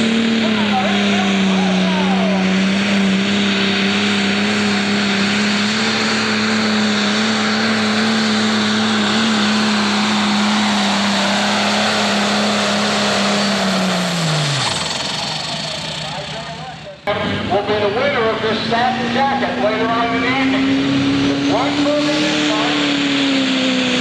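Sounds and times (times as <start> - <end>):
diesel tractor engine at full throttle: 0.0 - 24.0.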